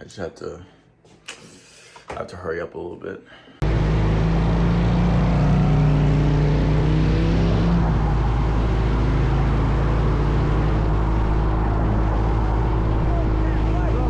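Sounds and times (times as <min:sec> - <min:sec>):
low rumble: 0:03.6 - 0:14.0.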